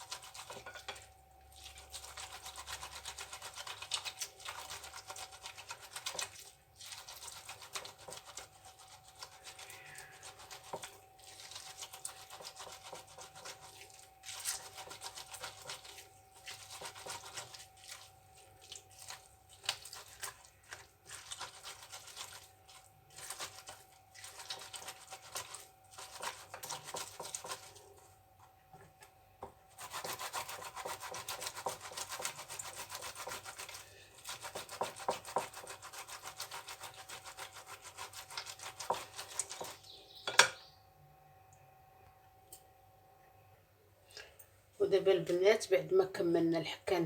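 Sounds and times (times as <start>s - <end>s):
fruit rasping on a grater: 0.0s - 28.0s, 29.7s - 39.8s.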